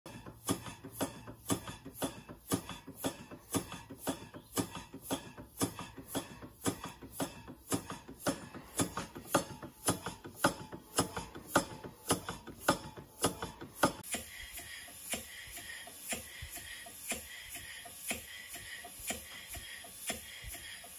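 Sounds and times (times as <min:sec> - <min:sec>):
toy steam engine knocking: 0:00.1 - 0:20.9.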